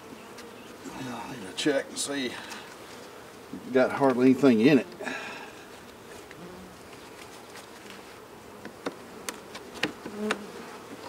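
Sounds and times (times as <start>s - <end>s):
bees buzzing: 0.0s - 11.0s
bees flying close by: 0.0s - 11.0s
clicks and taps of hive parts: 0.3s - 0.6s, 3.9s - 5.0s, 8.6s - 11.0s.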